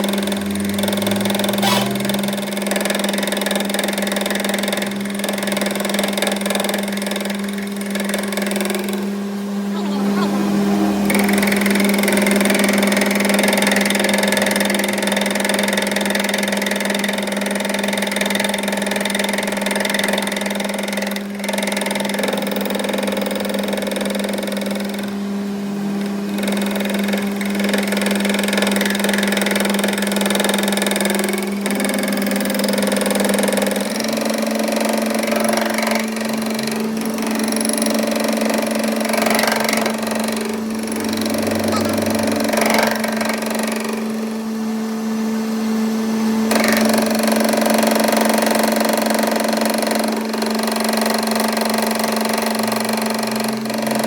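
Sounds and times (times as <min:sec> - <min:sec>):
machine motor humming: 0:00.0 - 0:05.8, 0:06.4 - 0:15.0, 0:33.1 - 0:45.7.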